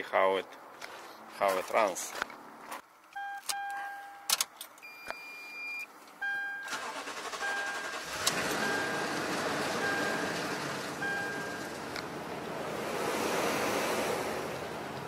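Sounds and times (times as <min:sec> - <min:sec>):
dashboard chime beeping: 0:03.2 - 0:06.7, 0:09.8 - 0:10.3, 0:11.0 - 0:11.7
engine cranking and starting: 0:06.7 - 0:11.9.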